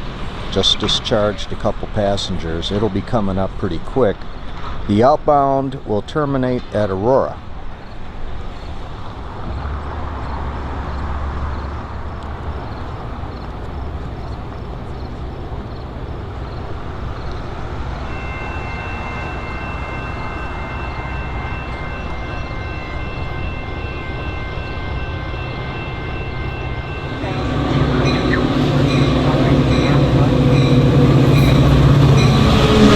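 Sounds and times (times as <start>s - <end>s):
low railway rumble: 0.0s - 32.9s
steady high tones: 14.3s - 32.9s
faint regular ringing: 17.1s - 32.8s.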